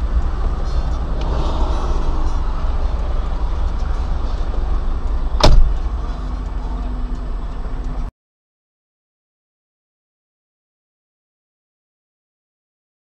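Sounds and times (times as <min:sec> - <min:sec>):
car engine rumble: 0:00.0 - 0:08.1
loud sharp thump: 0:05.4 - 0:05.8.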